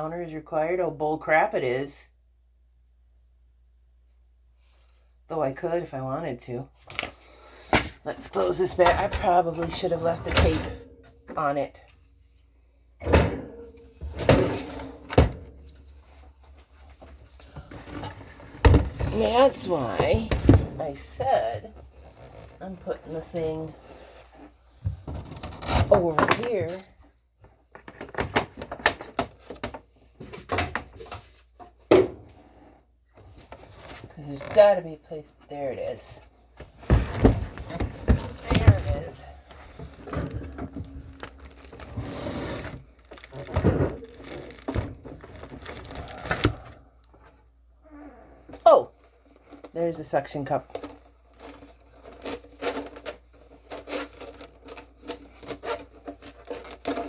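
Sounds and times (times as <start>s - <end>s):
handling knocks clicks and rustles: 36.6s - 42.0s.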